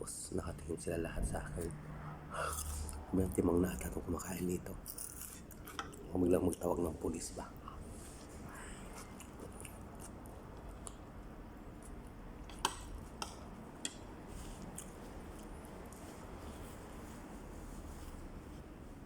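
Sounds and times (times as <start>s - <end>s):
low steady hum: 0.0s - 19.0s
close-up chewing: 8.9s - 13.1s.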